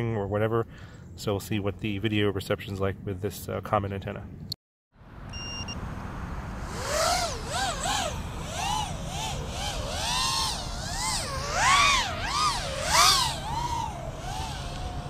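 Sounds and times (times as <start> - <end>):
drone motors whining: 5.3 - 15.0
steady low rush: 5.8 - 15.0.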